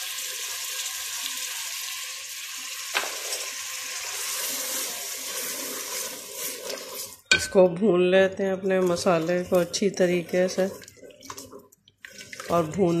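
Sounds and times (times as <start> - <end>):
onions sizzling in hot oil: 0.0 - 7.2
wooden spoon stirring: 4.1 - 13.0.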